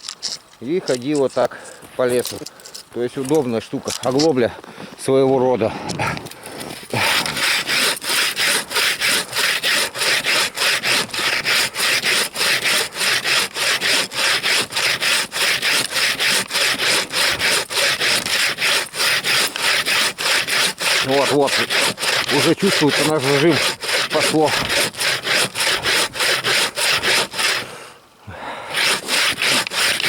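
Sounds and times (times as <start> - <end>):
bow saw cutting wood: 6.7 - 27.8, 28.7 - 30.0.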